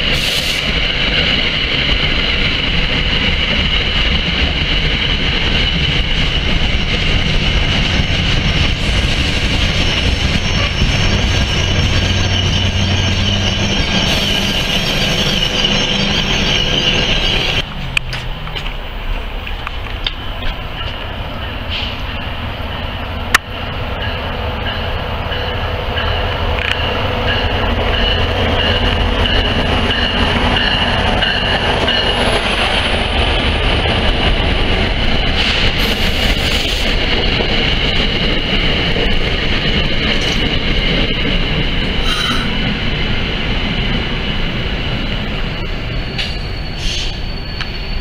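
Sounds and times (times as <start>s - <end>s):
train wheels rumbling: 0.0s - 48.0s
high wheel squeal: 8.7s - 17.6s, 44.8s - 48.0s.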